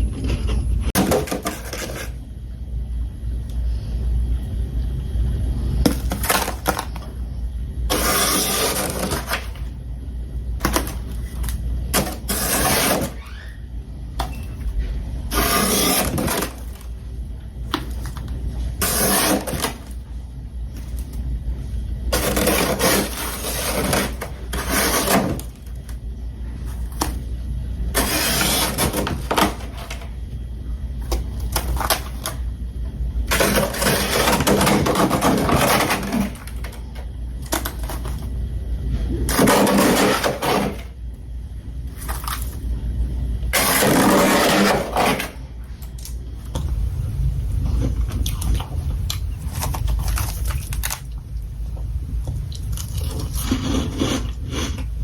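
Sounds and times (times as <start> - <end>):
steady low hum: 0.0 - 55.0
crunching and chewing of frost: 47.6 - 55.0.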